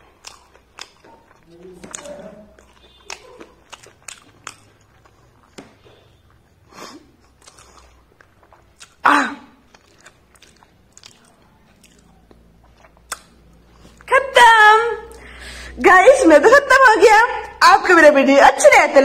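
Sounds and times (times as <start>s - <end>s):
person chewing: 0.0s - 14.1s
small mouth clicks: 9.7s - 13.6s.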